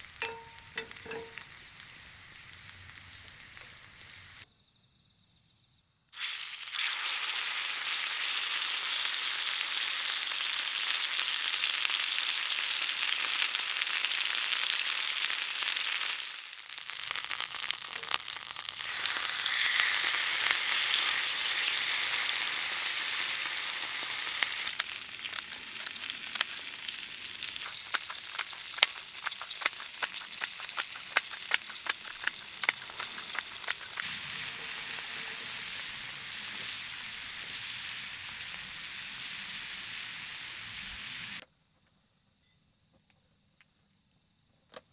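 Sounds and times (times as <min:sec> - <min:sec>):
fire crackling pops: 0:00.0 - 0:04.4, 0:16.7 - 0:41.4
wood fire hissing: 0:00.0 - 0:04.5, 0:06.2 - 0:41.4.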